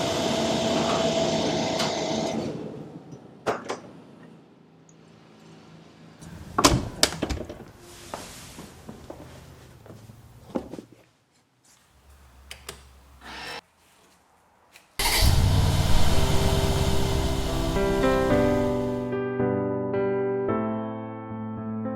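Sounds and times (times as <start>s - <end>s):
machine hum with held tone: 15.3s - 19.1s.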